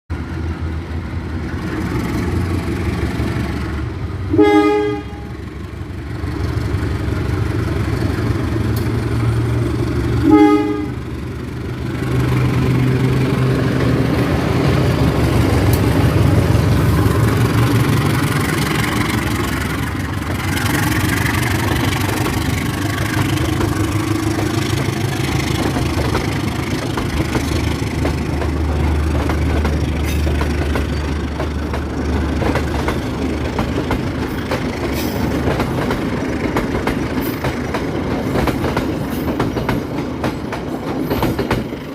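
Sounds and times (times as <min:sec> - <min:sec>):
locomotive diesel engine drone: 0:00.1 - 0:36.6
train horn blasts: 0:04.3 - 0:05.4, 0:10.2 - 0:11.0.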